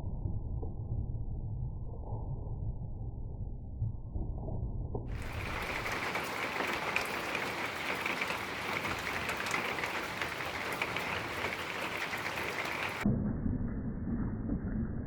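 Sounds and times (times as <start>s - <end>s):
rain falling steadily: 5.1s - 13.0s.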